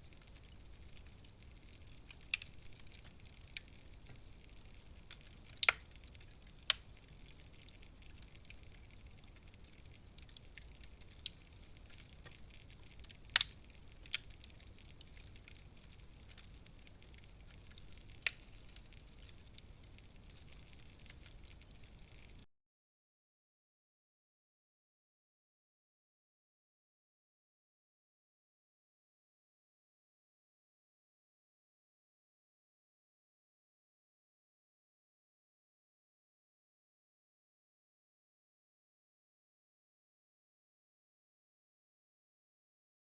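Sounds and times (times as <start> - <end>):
faint steady hiss: 0.0 - 22.5
wood fire crackling: 0.0 - 22.5.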